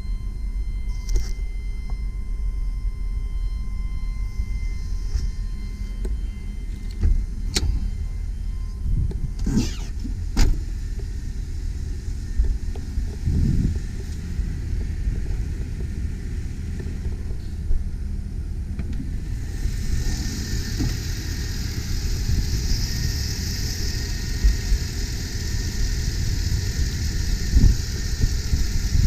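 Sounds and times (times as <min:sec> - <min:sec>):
truck engine idling: 0:03.7 - 0:29.0
hiss: 0:19.4 - 0:29.0.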